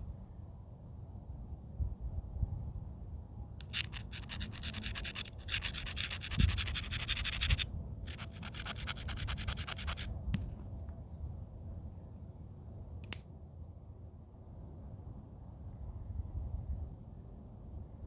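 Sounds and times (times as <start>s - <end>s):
stone scratching against stone: 3.6s - 10.1s.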